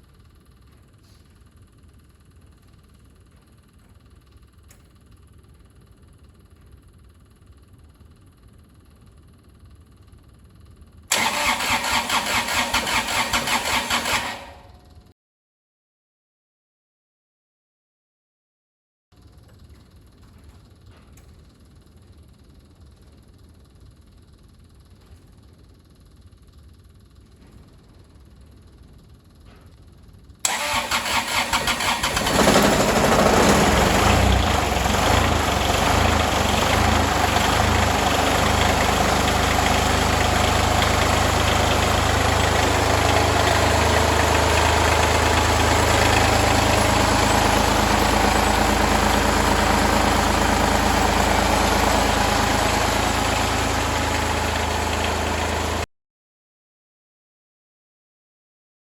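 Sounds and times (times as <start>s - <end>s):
starter motor cranking: 11.1s - 14.7s, 30.5s - 55.8s
diesel engine idling: 11.1s - 14.8s, 30.5s - 55.9s.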